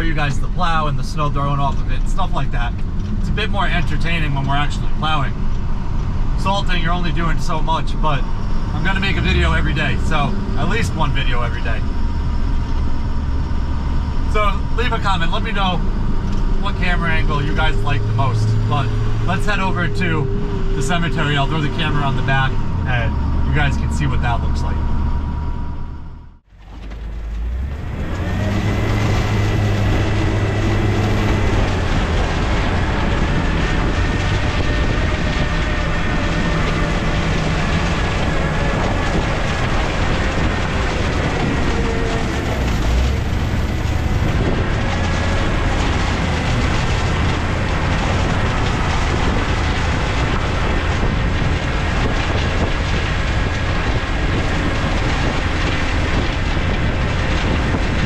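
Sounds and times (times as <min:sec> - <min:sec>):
truck engine and road noise: 0:00.0 - 0:58.0
rattling clatter: 0:24.7 - 0:58.0.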